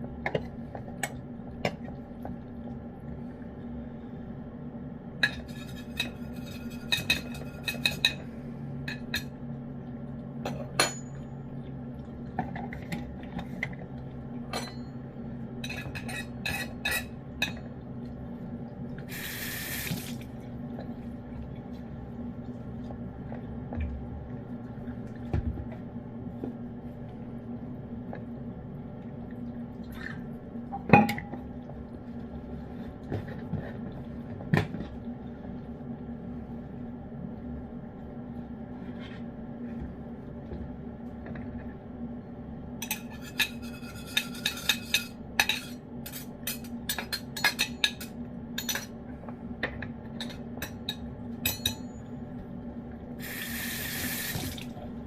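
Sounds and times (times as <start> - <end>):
steady electrical hum: 0.0 - 55.0.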